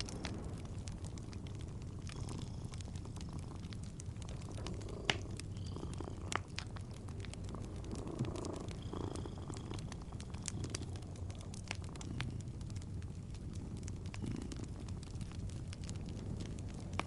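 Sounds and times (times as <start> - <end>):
sharp fire pops: 0.0 - 8.9
cat purring: 0.0 - 17.0
wood fire crackling: 0.0 - 17.0.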